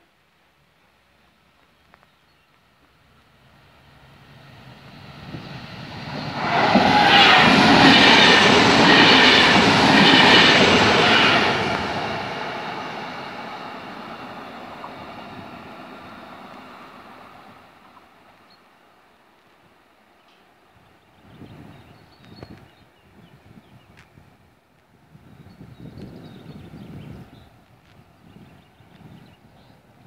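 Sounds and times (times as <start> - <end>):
electric train passing at speed: 3.0 - 18.9.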